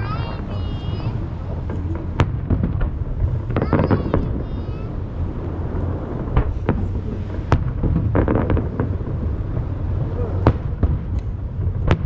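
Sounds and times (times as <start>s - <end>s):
fireworks bangs and cracks: 0.0s - 12.0s
low booming rumble: 0.0s - 12.0s.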